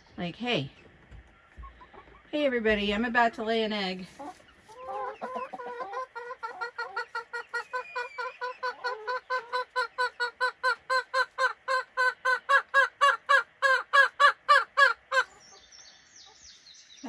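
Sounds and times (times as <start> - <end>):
hen cackling: 4.2 - 15.5.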